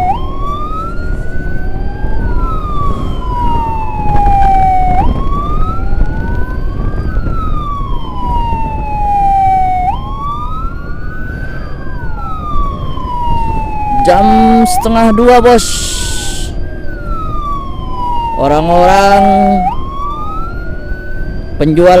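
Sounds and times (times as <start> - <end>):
engine and road rumble: 0.0 - 22.0
wailing ambulance sirens: 0.0 - 22.0.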